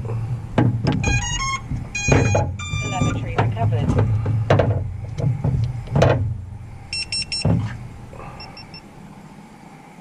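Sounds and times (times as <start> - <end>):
handling knocks: 0.0 - 6.6, 7.4 - 8.0
short electronic beeps: 1.0 - 3.3, 6.9 - 7.5, 8.4 - 8.9.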